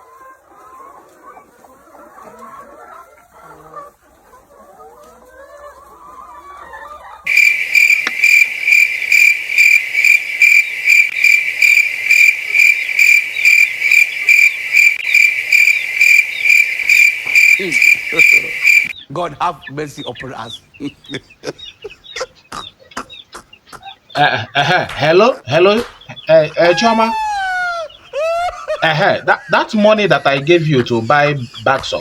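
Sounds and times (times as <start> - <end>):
faint chicken clucking: 0.0 - 9.2, 10.8 - 32.0
loud cricket chirping: 7.3 - 19.0.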